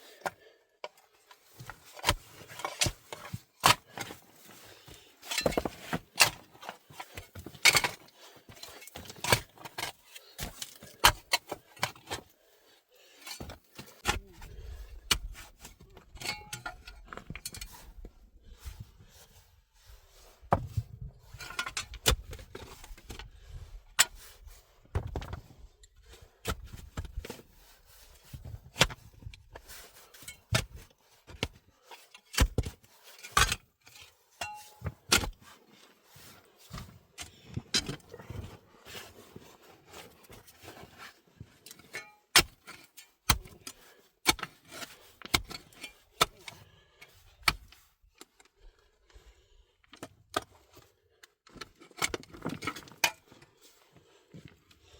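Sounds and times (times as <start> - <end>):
sharp knocks clicks and scrapes: 5.3 - 12.3, 40.0 - 46.6, 51.5 - 53.4.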